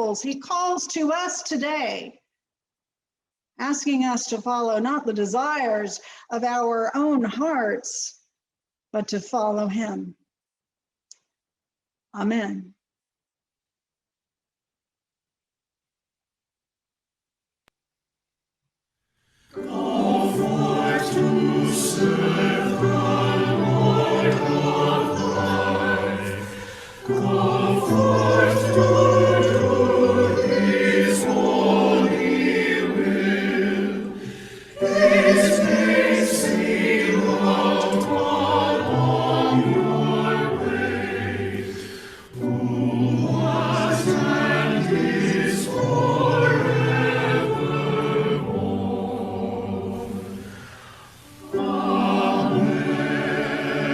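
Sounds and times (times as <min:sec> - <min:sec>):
choir singing: 0:19.5 - 0:53.9.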